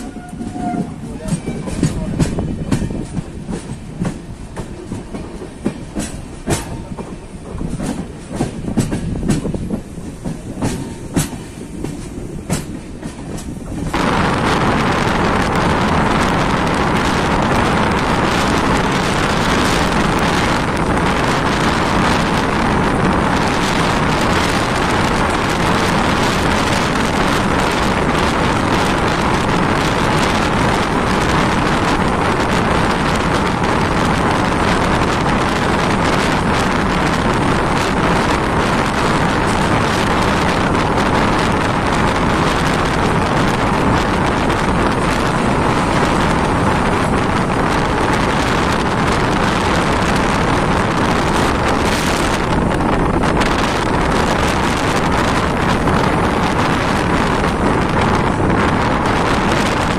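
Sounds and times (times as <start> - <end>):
wheels clicking over rail joints: 0.0 - 14.0
rush of wind and rolling noise: 0.0 - 59.9
train track rumble: 0.0 - 59.9.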